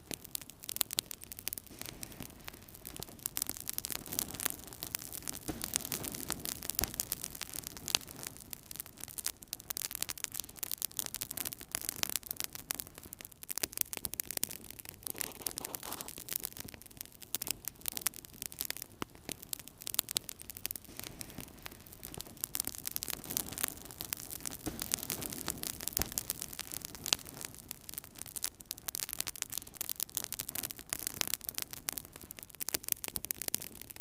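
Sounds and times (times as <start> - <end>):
wood fire crackling: 0.0 - 34.0
hiss of flame: 1.6 - 8.4, 15.0 - 16.4, 20.8 - 28.1.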